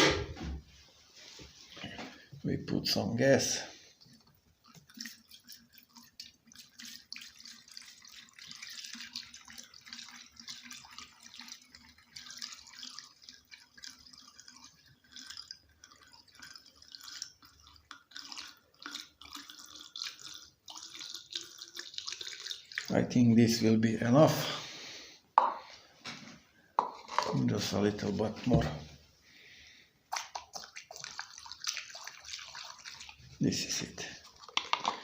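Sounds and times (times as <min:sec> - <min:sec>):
fuel trickling and splashing: 0:03.4 - 0:23.2, 0:29.2 - 0:35.0.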